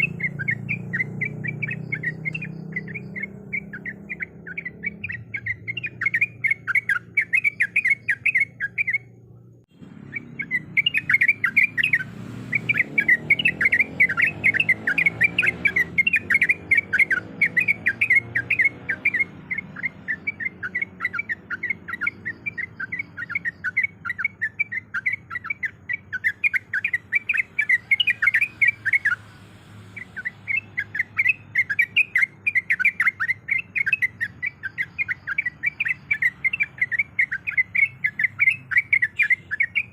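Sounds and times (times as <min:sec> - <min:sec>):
bird chattering: 0:00.0 - 0:39.9.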